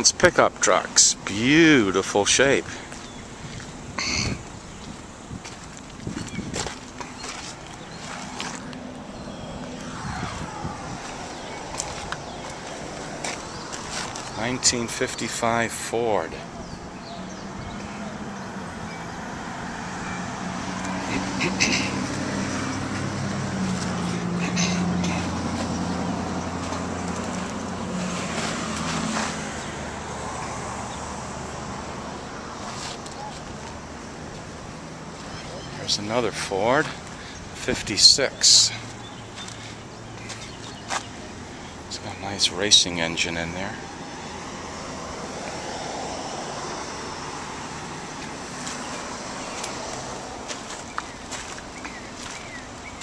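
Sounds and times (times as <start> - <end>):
road traffic rumble: 0.0 - 53.0
vehicle passing by: 6.6 - 15.6, 16.2 - 53.0.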